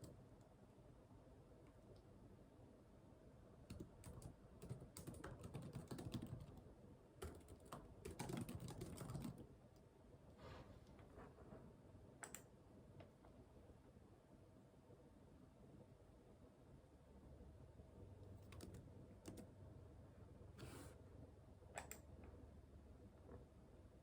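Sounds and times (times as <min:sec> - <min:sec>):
typing on a keyboard: 0:03.7 - 0:09.5, 0:18.4 - 0:19.5, 0:21.8 - 0:22.1.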